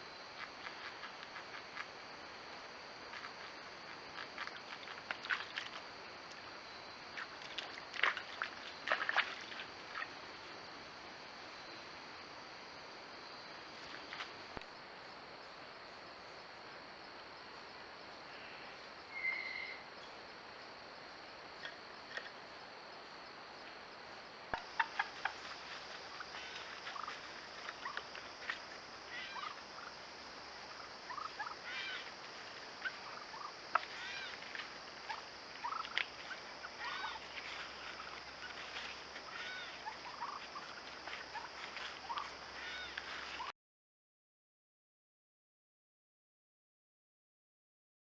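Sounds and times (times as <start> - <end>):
high insect trill: 17.4 - 43.5
birds calling: 24.6 - 29.9, 30.6 - 43.5.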